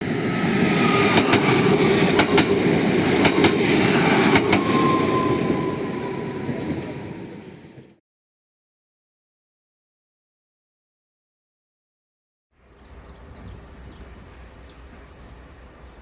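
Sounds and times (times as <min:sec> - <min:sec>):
train rumble: 0:00.0 - 0:08.0, 0:12.7 - 0:16.0
train wheels clicking on rails: 0:00.6 - 0:05.2.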